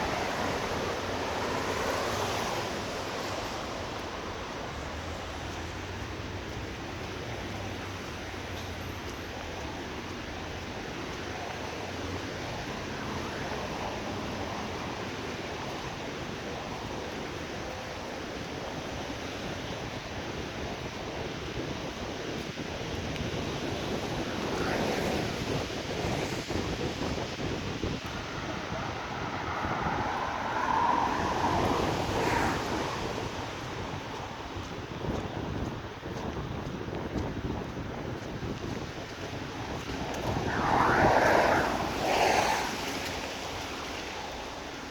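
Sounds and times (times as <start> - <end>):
tyres hissing on wet road: 0.0 - 35.4, 38.7 - 44.9
car tyres hissing through water: 24.4 - 34.2, 39.6 - 44.9.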